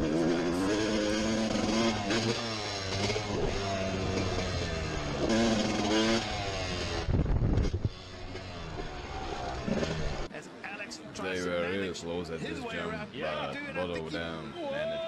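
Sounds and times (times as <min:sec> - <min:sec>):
motocross bike engine revving: 0:00.0 - 0:10.3.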